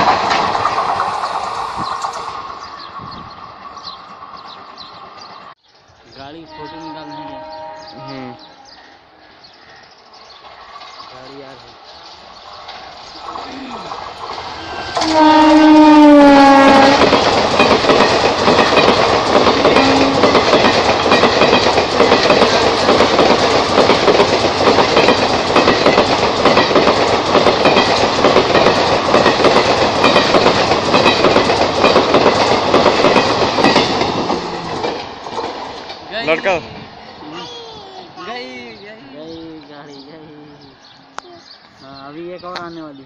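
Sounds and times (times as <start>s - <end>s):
train coaches clattering over rails: 0.0s - 5.5s, 10.3s - 36.9s
locomotive horn: 6.5s - 8.8s, 14.6s - 17.1s, 19.8s - 20.3s.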